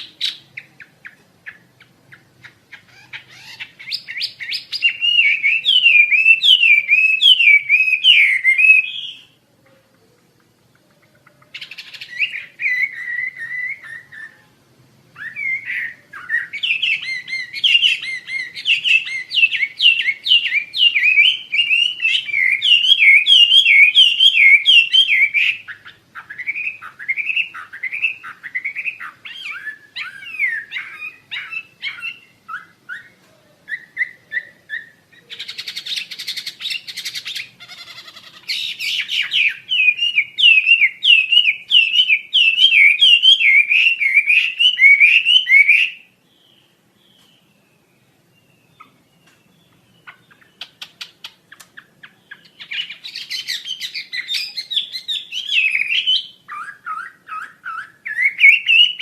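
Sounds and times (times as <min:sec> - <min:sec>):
bird singing whistled notes: 0:00.0 - 0:09.4, 0:11.4 - 0:14.5, 0:15.2 - 0:59.0
harsh buzzy bird call: 0:10.6 - 0:46.8.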